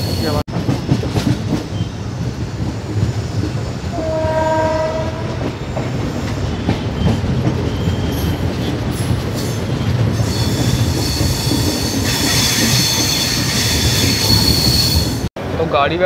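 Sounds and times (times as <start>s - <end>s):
wheels and brakes squealing: 0.0s - 0.4s, 6.0s - 15.3s
train rumbling: 0.0s - 16.0s.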